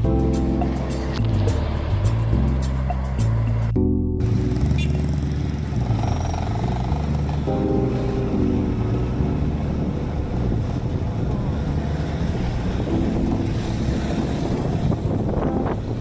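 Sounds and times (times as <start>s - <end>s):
motorbike engine running: 1.3s - 12.8s
wind buffeting microphone: 9.0s - 16.0s.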